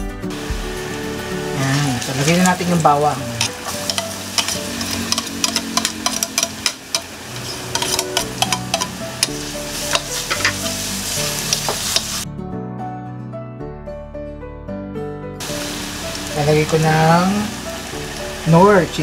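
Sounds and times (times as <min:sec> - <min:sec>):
background music: 0:00.0 - 0:19.0
garlic and onions sizzling in oil: 0:00.3 - 0:12.2, 0:15.4 - 0:19.0
spatula scraping a pan: 0:03.4 - 0:12.2.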